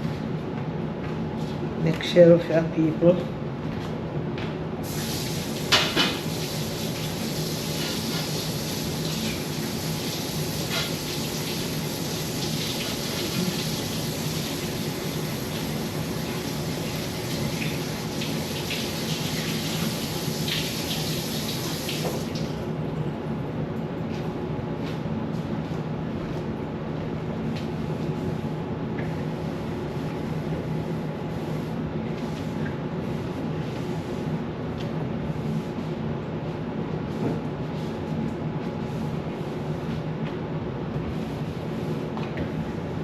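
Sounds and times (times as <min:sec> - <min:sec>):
low mechanical hum: 0:00.0 - 0:43.0
running water: 0:04.9 - 0:22.5.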